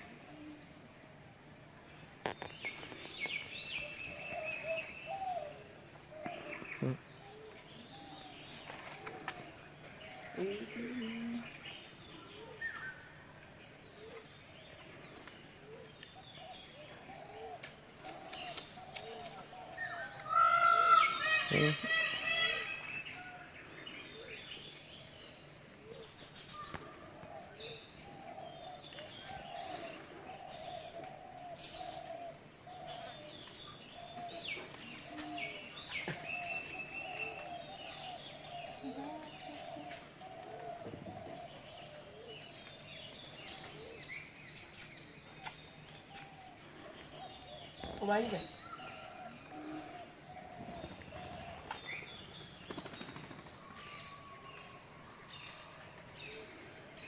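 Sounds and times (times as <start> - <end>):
higher bird chirps and calls: 18.3 - 23.4.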